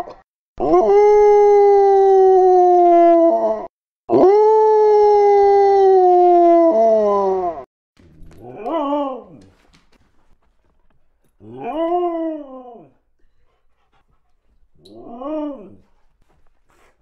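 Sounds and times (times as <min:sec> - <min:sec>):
dog howling: 0:08.2 - 0:09.7, 0:11.4 - 0:17.0.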